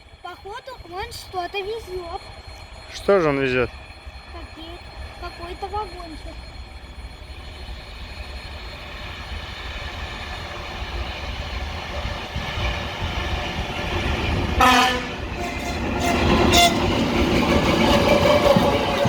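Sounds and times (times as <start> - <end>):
locomotive engine and wheel rumble: 0.0 - 19.0
train horn blasts: 14.6 - 17.2.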